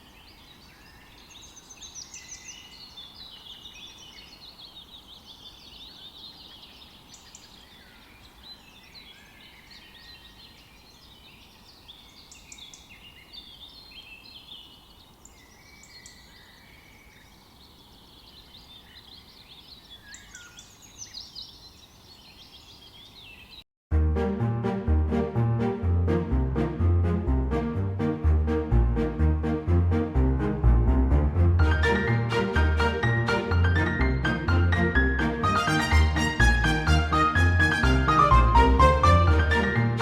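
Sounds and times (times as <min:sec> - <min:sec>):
chorus of birds chirping: 0:00.0 - 0:23.6
music: 0:23.9 - 0:40.0.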